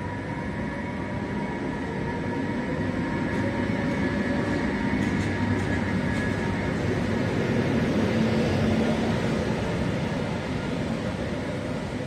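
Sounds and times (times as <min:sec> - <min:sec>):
electric train whine: 0:00.0 - 0:12.0
train wheels rumbling on rails: 0:00.0 - 0:12.0.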